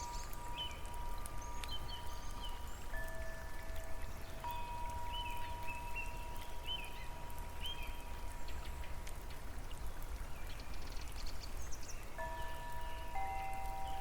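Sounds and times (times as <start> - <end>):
water drips: 0.0 - 14.0
water pattering and trickling: 0.0 - 14.0
bird chirps: 12.8 - 14.0.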